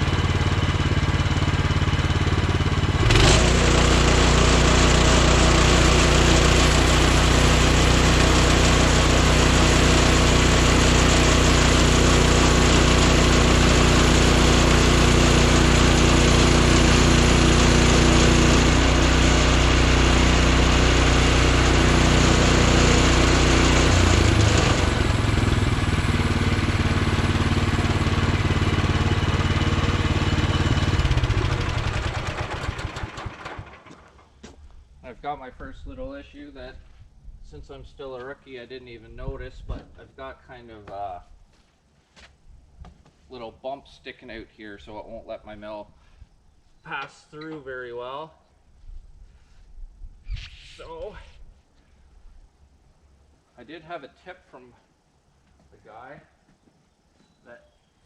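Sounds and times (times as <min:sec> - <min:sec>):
small gasoline engine running: 0:00.0 - 0:34.4.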